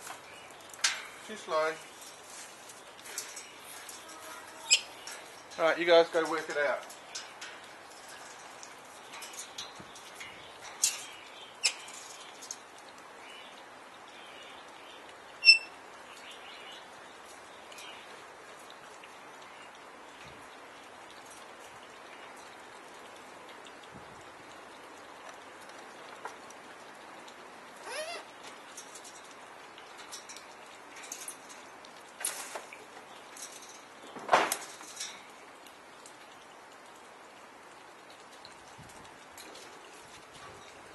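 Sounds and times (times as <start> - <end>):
birds clicking and scratching: 0.0 - 13.0, 24.6 - 36.2
steady rain-like hiss: 0.0 - 40.9
parrots squawking: 27.8 - 28.3.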